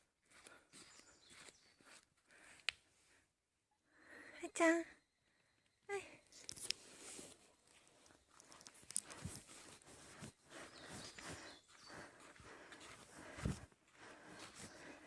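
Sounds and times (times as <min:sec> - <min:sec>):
footsteps on a road: 0:00.2 - 0:02.7, 0:07.0 - 0:15.0.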